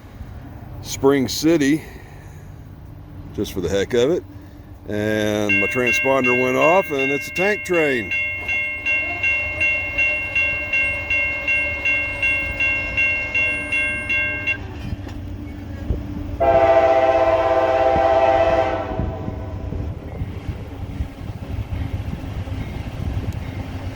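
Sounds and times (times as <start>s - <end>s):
steady low rumble: 0.0s - 17.7s, 18.4s - 23.9s
crossing bell ringing: 4.9s - 15.8s
locomotive horn blast: 5.5s - 14.7s, 16.4s - 19.8s.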